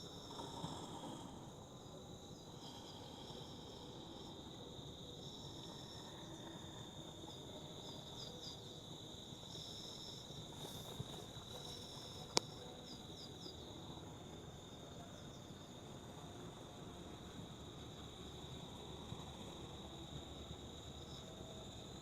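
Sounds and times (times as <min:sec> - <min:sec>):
higher insect chirps: 0:00.0 - 0:22.0
insects trilling: 0:00.0 - 0:22.0.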